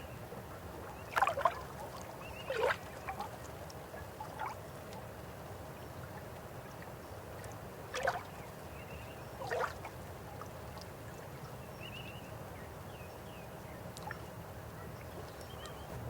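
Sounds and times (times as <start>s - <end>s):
river water flowing: 0.2s - 16.0s
water splashes: 0.7s - 8.7s, 9.4s - 11.6s.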